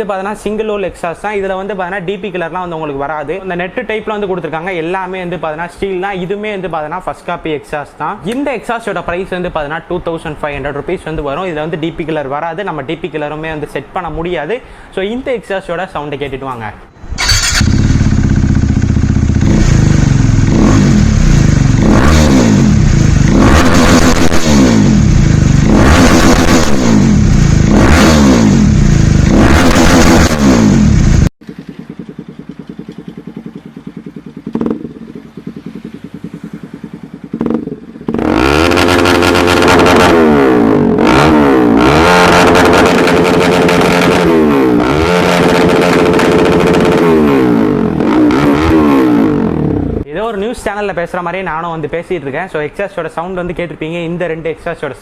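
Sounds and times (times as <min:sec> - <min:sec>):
motorcycle revving: 0:17.0 - 0:50.1
motorcycle idling: 0:17.2 - 0:23.4, 0:24.8 - 0:25.7, 0:30.6 - 0:39.6.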